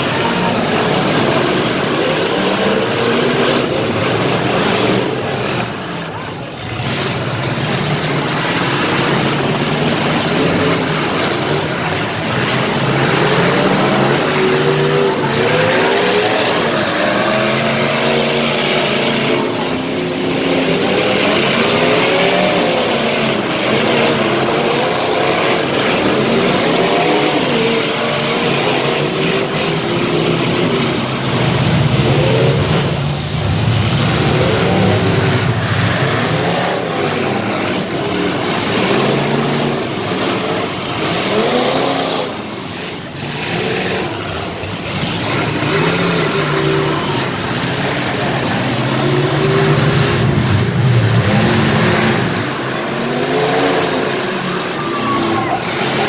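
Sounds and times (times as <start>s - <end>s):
car engines revving hard: 0.0s - 56.0s.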